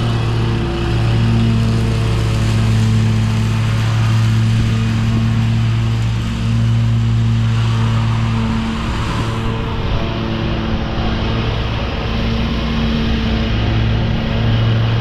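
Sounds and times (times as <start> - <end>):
riding lawn mower engine: 0.0 - 15.0.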